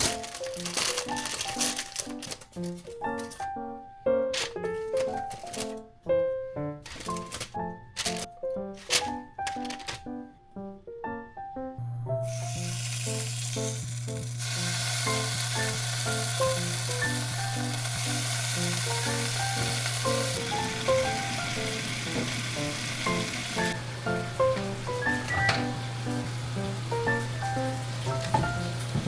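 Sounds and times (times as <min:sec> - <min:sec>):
light background music: 0:00.0 - 0:29.0
food sizzling in a pan: 0:12.2 - 0:23.8.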